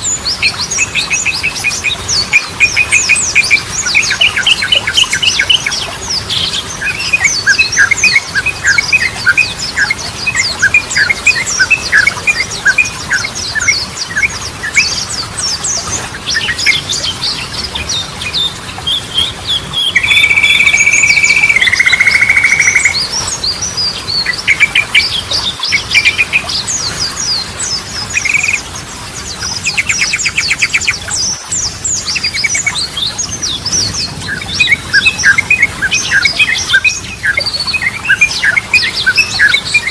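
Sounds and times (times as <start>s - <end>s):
bird chirping song: 0.0s - 39.9s
bird fast trill: 19.8s - 23.1s, 28.1s - 28.6s
bird held whistle: 28.2s - 28.6s.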